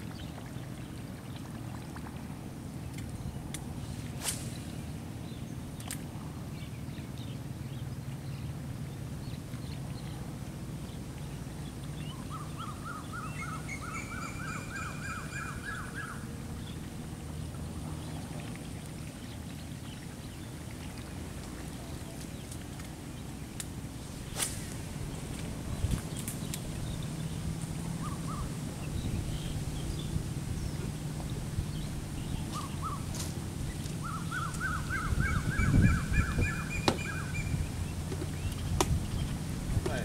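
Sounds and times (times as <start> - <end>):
low outdoor rumble: 0.0 - 40.0
bird calling: 12.0 - 16.4, 26.1 - 39.2.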